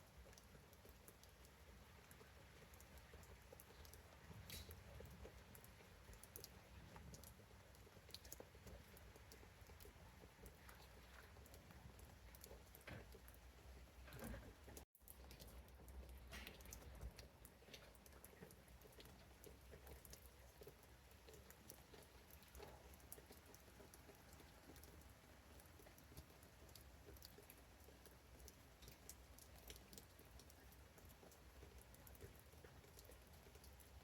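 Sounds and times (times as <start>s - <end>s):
rain pattering on leaves: 0.0s - 34.0s.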